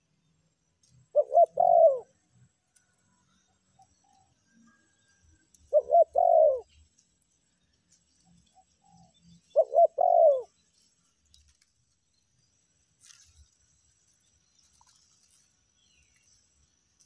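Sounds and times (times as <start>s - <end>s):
dove cooing: 1.1s - 2.1s, 5.7s - 6.7s, 9.5s - 10.5s.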